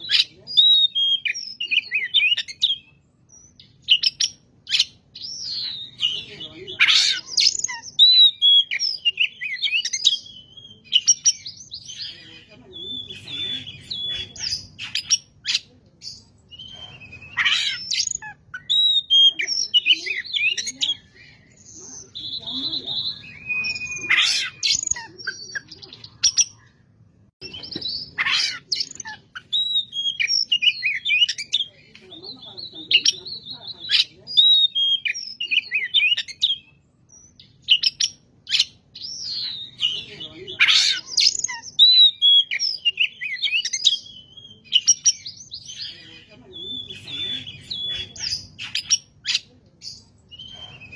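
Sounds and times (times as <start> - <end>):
songbird singing: 0.0 - 50.9
songbird whistles and trills: 12.8 - 26.7, 46.6 - 50.9.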